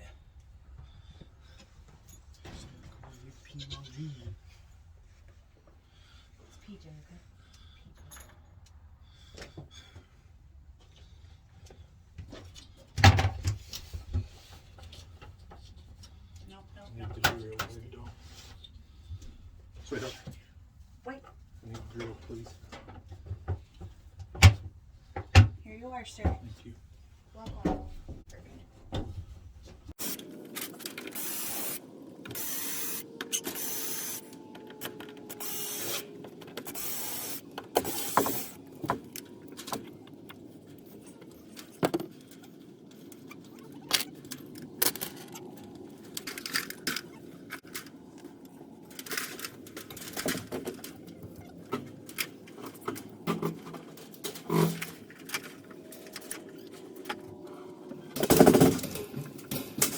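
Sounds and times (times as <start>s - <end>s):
screws and metal parts clinking: 30.0s - 57.4s
cordless drill running: 31.0s - 34.4s, 35.1s - 38.6s.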